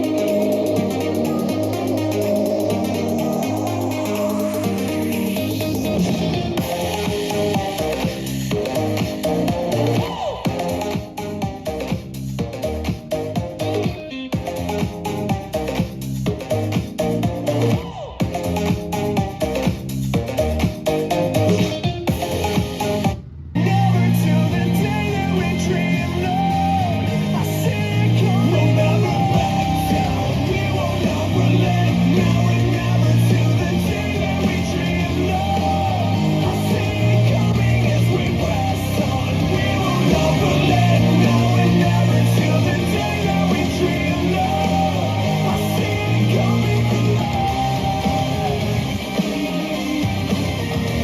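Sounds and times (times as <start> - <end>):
rock song with singing: 0.0 - 11.9, 23.6 - 51.0.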